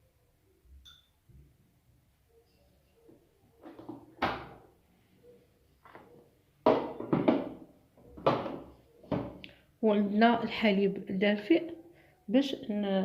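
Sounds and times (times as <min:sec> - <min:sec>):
kitchen containers knocking: 0:06.6 - 0:09.4.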